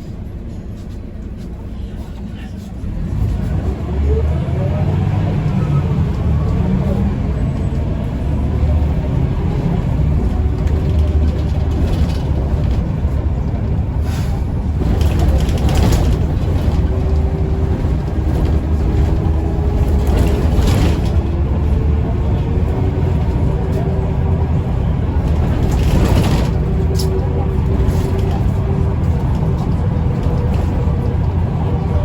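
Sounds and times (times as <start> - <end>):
bus engine rumble: 0.0 - 32.0.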